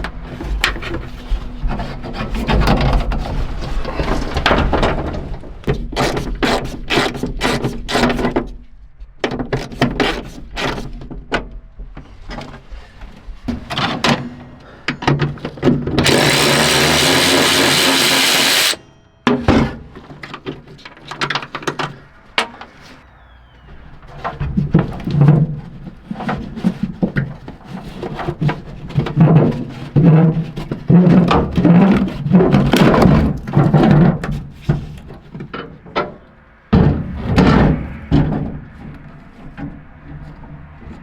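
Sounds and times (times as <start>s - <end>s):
power tool running: 15.9s - 18.9s.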